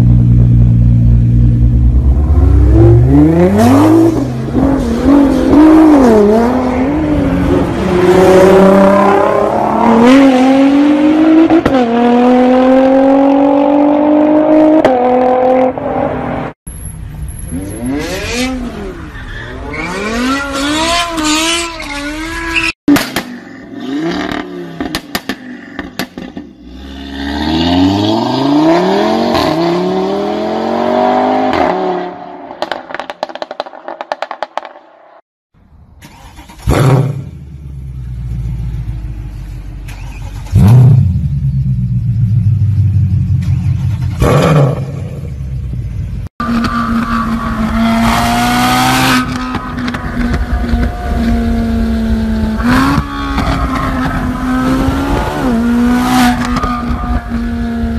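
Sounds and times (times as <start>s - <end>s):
car engine revving: 39.9s - 57.9s.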